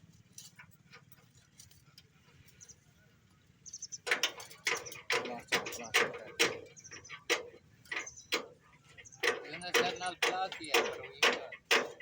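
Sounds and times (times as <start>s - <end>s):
hammer striking steel: 9.2s - 12.0s.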